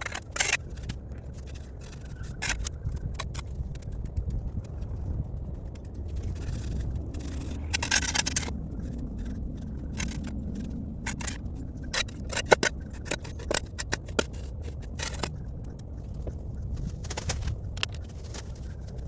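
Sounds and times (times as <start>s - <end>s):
steady low rumble: 0.0s - 19.0s
shovel scraping soil: 6.4s - 8.5s, 11.1s - 15.3s.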